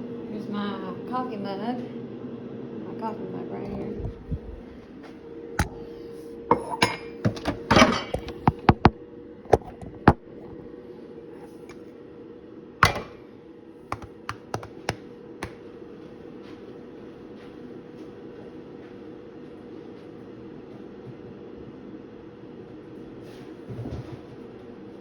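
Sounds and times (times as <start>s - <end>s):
low hum: 3.6s - 13.9s.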